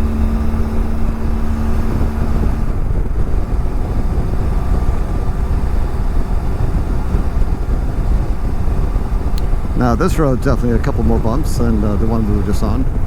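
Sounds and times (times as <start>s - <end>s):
motorcycle engine drone: 0.0s - 13.0s
steady hum: 0.0s - 13.0s
wind noise: 0.0s - 13.0s.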